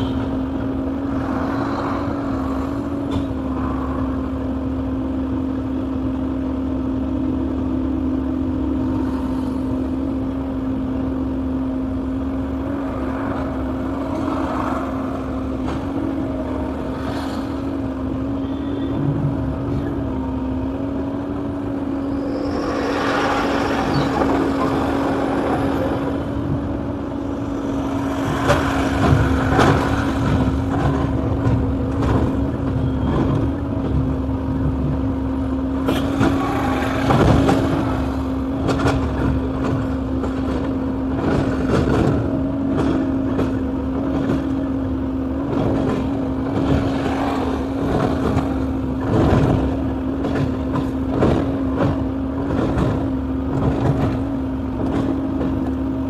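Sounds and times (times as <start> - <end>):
excavator diesel engine running: 0.0 - 56.0
rushes of noise: 20.9 - 33.0, 45.7 - 50.0.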